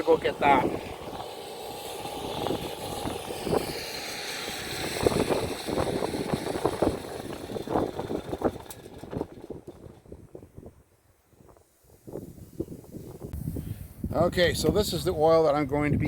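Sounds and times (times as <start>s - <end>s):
steady rushing background: 0.0s - 10.3s.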